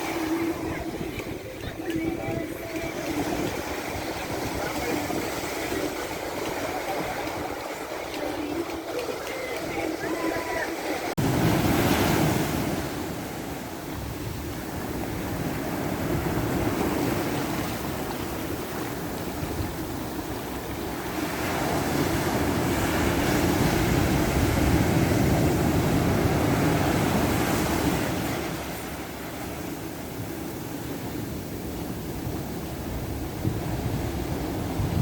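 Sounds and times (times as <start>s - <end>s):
ocean surf breaking: 0.0s - 35.0s.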